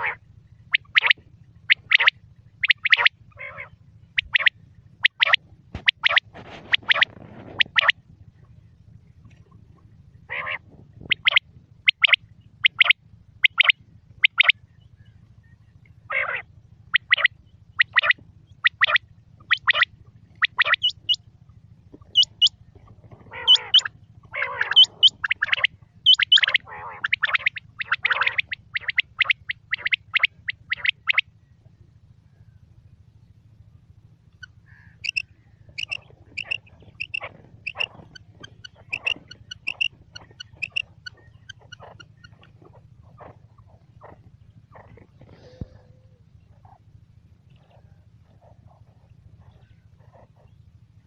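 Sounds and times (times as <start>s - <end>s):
quail calling: 0.0s - 8.5s, 9.2s - 21.2s, 21.9s - 31.4s, 34.3s - 46.9s, 47.5s - 50.6s
low steady hum: 0.0s - 51.0s
high upward-flicking bird notes: 0.8s - 3.1s, 4.2s - 7.9s, 11.1s - 14.5s, 17.0s - 21.2s, 24.6s - 31.2s, 34.4s - 35.2s, 35.8s - 40.8s.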